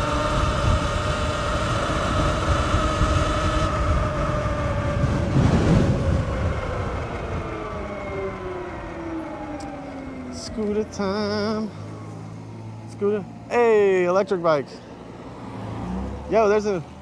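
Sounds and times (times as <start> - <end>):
wind noise on microphone: 0.0 - 9.8
electric motor whining: 0.0 - 13.8.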